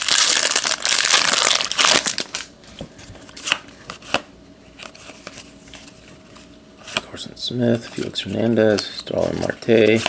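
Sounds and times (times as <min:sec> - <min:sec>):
wrapper tearing and crinkling: 0:00.0 - 0:02.5.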